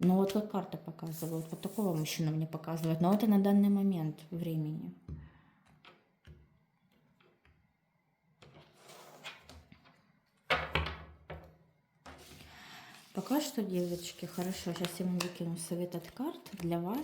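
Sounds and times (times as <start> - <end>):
cards rustling: 12.2 - 17.0.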